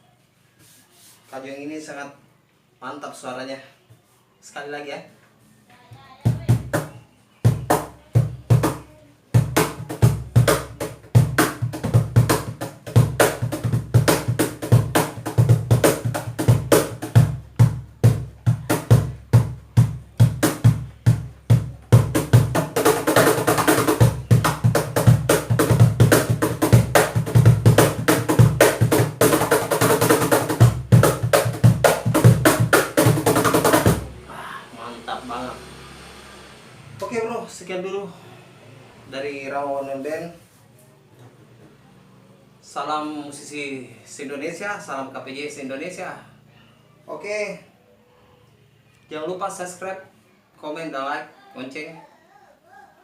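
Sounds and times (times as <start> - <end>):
cajon played by hand: 5.9 - 34.3.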